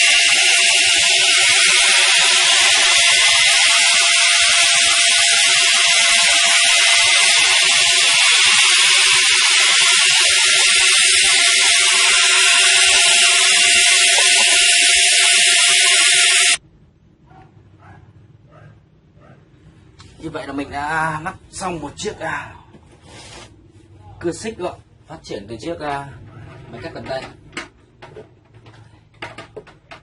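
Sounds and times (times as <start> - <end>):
angle grinder chainsaw high whine: 0.0 - 16.6.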